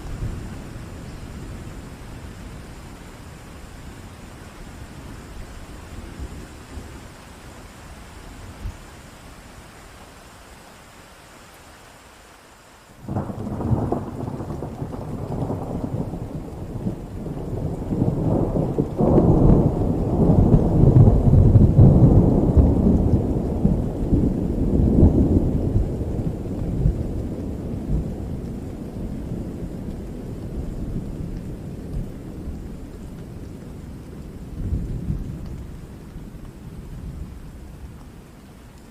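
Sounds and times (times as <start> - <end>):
rain falling: 0.0 - 38.9
thunder rumbling: 13.0 - 38.2.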